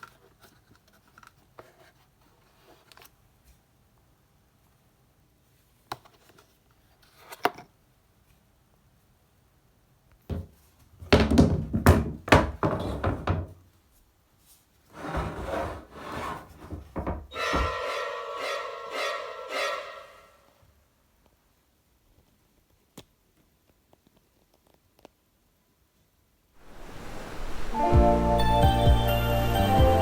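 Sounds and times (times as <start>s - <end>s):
knocking and thumps: 10.3s - 13.6s, 15.0s - 17.9s
scraping: 15.0s - 20.5s.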